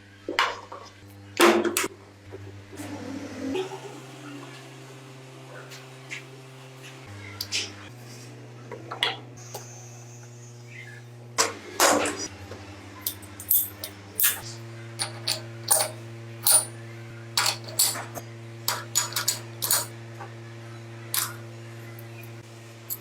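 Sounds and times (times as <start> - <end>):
metal parts and tools clinking: 13.1 - 16.8, 17.4 - 20.0, 21.1 - 23.0.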